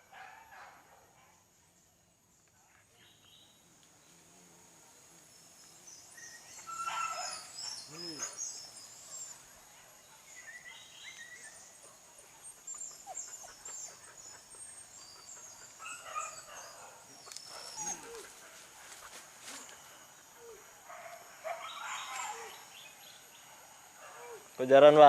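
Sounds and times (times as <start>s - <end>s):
distant dogs yelping and barking: 0.0s - 1.4s, 6.2s - 24.6s.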